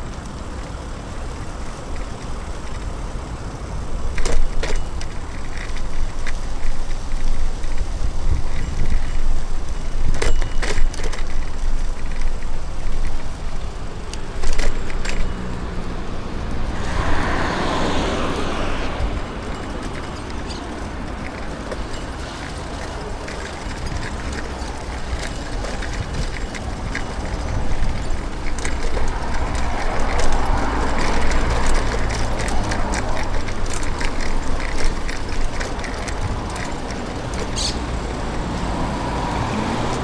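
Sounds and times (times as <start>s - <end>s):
bicycle rumble: 0.0s - 40.0s
motor vehicle passing: 13.8s - 40.0s
sharp rattling clicks: 19.1s - 40.0s.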